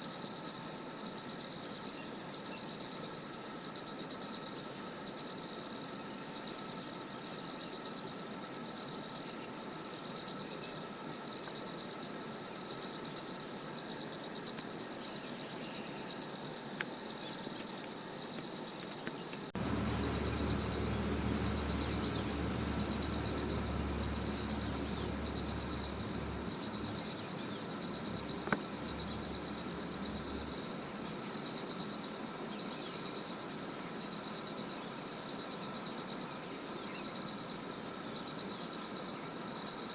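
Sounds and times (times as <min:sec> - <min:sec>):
low rumble: 0:19.6 - 0:31.2
high insect chirping: 0:19.6 - 0:31.4
pulsing insect trill: 0:19.6 - 0:32.0.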